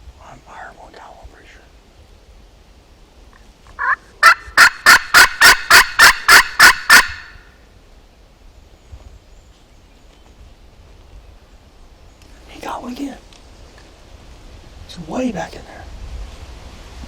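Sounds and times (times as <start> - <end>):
turkey yelping: 3.8 - 7.4.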